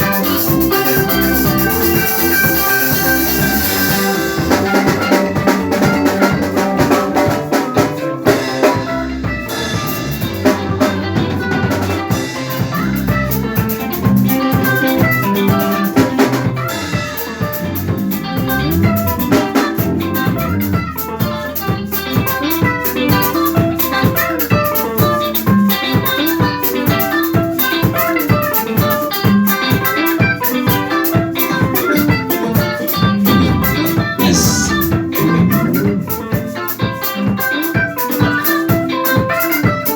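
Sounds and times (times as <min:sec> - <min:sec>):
picked electric guitar: 0:00.0 - 0:39.9
drum kit steady beat: 0:17.3 - 0:21.1, 0:33.2 - 0:36.2.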